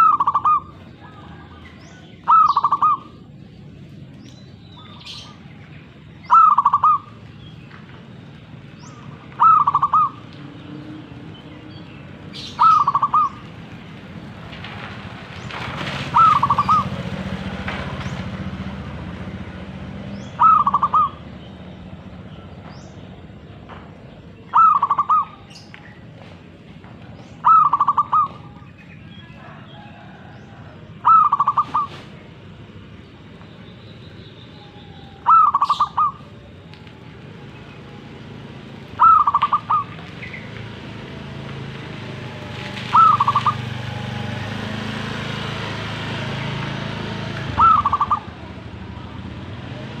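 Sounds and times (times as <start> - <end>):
dove cooing staccato notes: 0.0 - 3.3, 6.3 - 7.3, 9.0 - 10.4, 12.4 - 13.6, 16.1 - 17.2, 20.3 - 21.3, 24.5 - 25.4, 27.4 - 28.7, 29.6 - 32.2, 35.1 - 36.4, 39.0 - 40.6, 42.9 - 43.7, 47.2 - 48.8.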